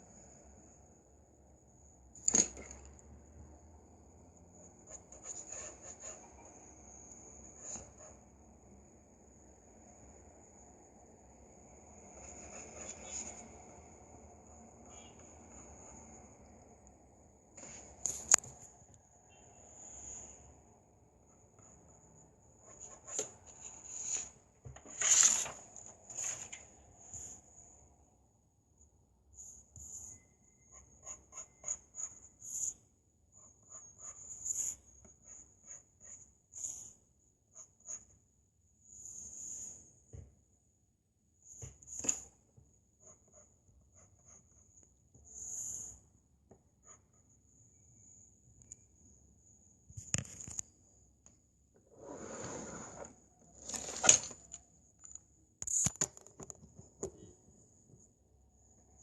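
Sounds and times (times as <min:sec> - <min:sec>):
pencil scratching on paper: 0:04.7 - 0:06.7, 0:07.4 - 0:08.3, 0:12.1 - 0:13.7, 0:21.3 - 0:25.0, 0:29.4 - 0:38.2, 0:43.0 - 0:46.0
rustling and scraping handling: 0:52.0 - 0:54.6.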